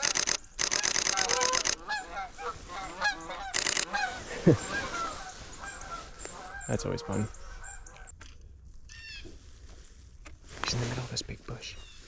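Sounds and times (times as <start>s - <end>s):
camera shutter bursts: 0.0s - 1.8s, 3.5s - 4.1s
geese honking: 1.1s - 8.1s.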